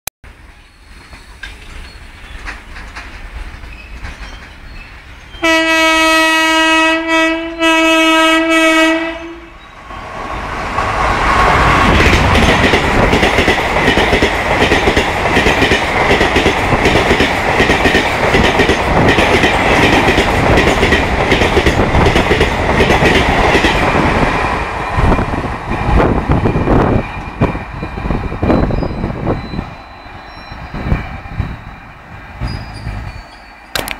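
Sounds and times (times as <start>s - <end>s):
train wheels clattering on track: 0.3s - 5.9s, 9.7s - 33.9s
train horn blasts: 5.4s - 9.6s.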